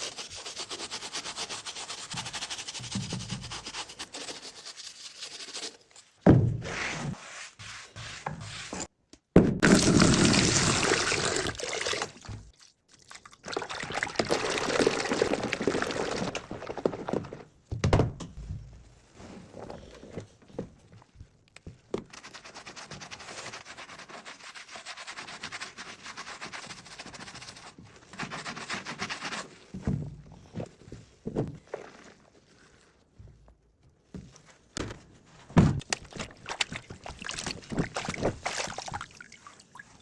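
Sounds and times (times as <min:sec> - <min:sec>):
shoe being scrubbed and brushed: 0:00.0 - 0:05.8, 0:06.6 - 0:08.9, 0:22.2 - 0:29.7
wet liquid sounds: 0:09.6 - 0:17.1, 0:35.9 - 0:40.0.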